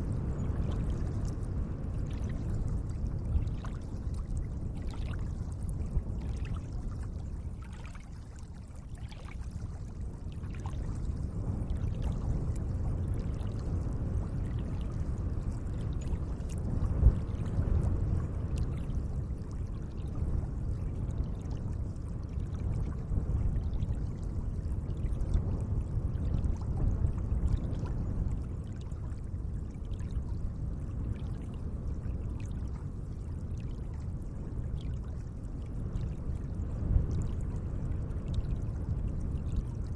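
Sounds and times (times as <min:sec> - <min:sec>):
lake water splashing softly: 0:00.5 - 0:20.2, 0:27.2 - 0:34.0, 0:34.8 - 0:36.5.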